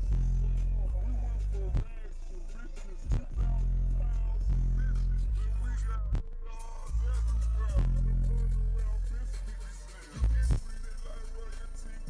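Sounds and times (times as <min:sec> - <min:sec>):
deep sub-bass note: 0:00.0 - 0:02.3, 0:03.1 - 0:09.4
hip hop music on car stereo: 0:00.0 - 0:12.0.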